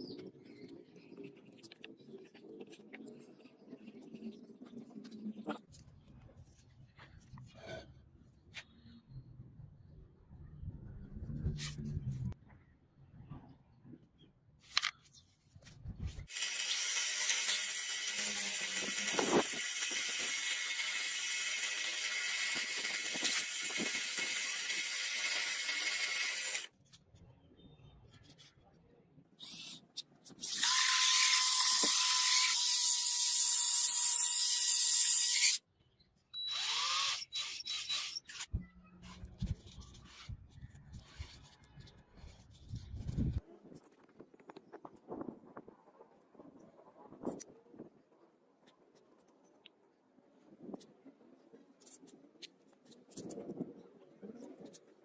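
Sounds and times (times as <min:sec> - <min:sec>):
small power tool buzzing: 0:16.3 - 0:26.7, 0:30.4 - 0:35.6, 0:36.4 - 0:38.5.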